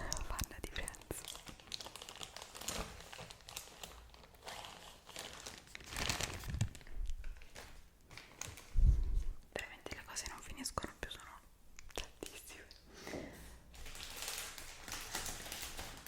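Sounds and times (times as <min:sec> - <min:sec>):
packaging crinkling: 0:00.0 - 0:08.9, 0:13.7 - 0:16.0.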